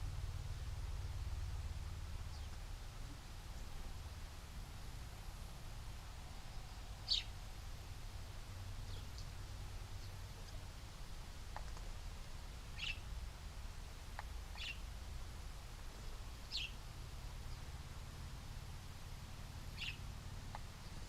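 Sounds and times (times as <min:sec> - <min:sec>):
low outdoor rumble: 0:00.0 - 0:21.0
small bird chirping: 0:00.9 - 0:04.2, 0:06.2 - 0:07.6, 0:08.8 - 0:10.6, 0:12.7 - 0:13.1, 0:14.1 - 0:14.9, 0:16.4 - 0:16.8, 0:19.6 - 0:21.0
faint ticks: 0:09.0 - 0:09.4, 0:11.5 - 0:12.0, 0:14.1 - 0:14.8, 0:19.8 - 0:20.8.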